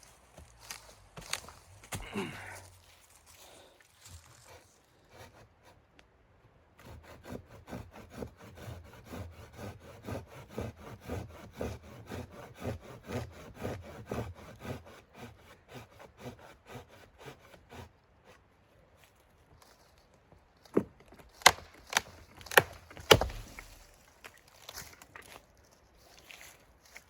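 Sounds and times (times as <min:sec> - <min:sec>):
hand saw cutting wood: 0:04.4 - 0:05.8, 0:06.8 - 0:18.4, 0:20.8 - 0:24.1.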